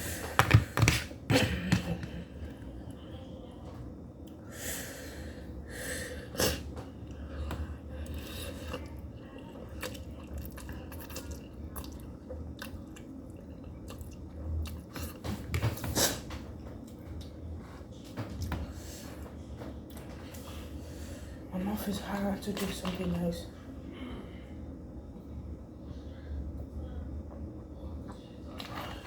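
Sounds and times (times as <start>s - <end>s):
person chewing noodles: 8.0s - 15.3s.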